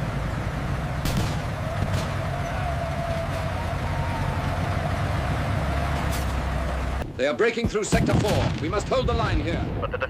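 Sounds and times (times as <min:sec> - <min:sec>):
continuous low rumble: 0:00.0 - 0:10.0
gunshots: 0:01.0 - 0:02.3, 0:07.6 - 0:09.6.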